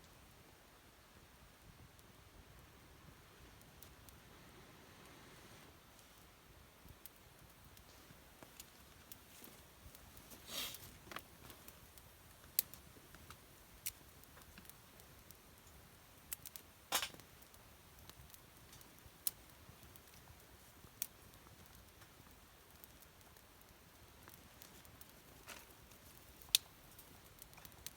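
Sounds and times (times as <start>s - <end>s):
faint steady hiss: 0.0s - 27.9s
campfire pops and snaps: 6.8s - 27.9s.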